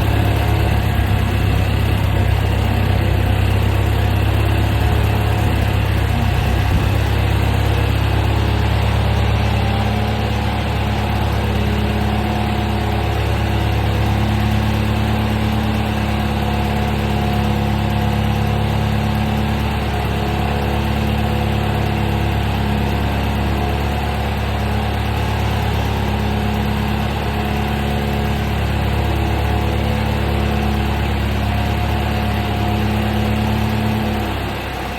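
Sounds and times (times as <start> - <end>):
tractor engine running steadily: 0.0 - 34.9.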